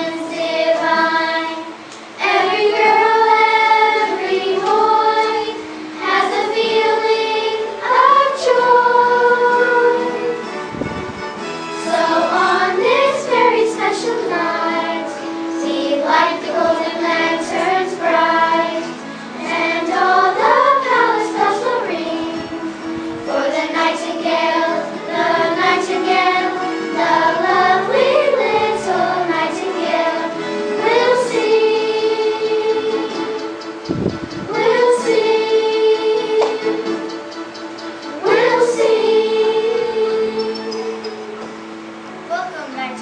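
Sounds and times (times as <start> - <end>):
children singing: 0.0 - 10.6, 11.8 - 41.5
backing music: 0.0 - 43.0.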